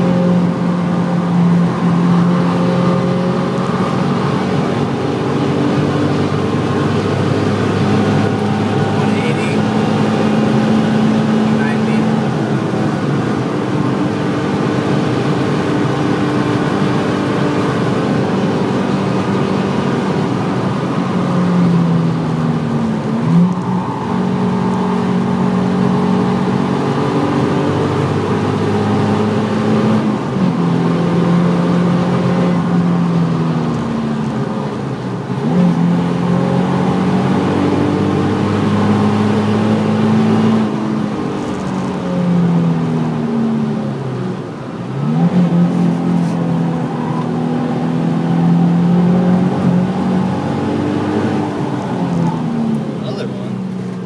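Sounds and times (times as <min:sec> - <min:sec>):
car engine revving: 0:00.0 - 0:54.0
road and wind noise: 0:00.0 - 0:54.0.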